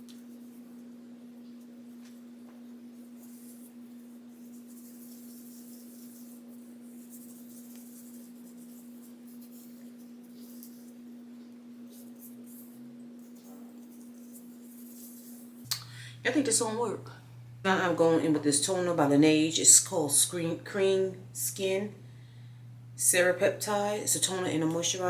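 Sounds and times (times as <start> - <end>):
steady low hum: 0.0 - 25.0
rubbing product on face: 2.8 - 15.6.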